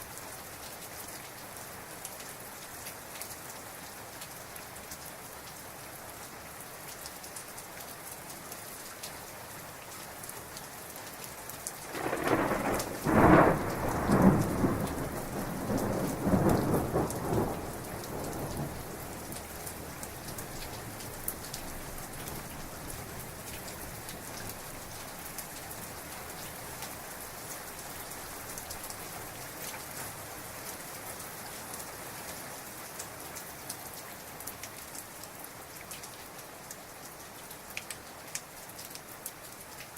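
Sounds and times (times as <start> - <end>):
heavy rain: 0.0 - 39.9
rolling thunderclap: 11.9 - 18.8.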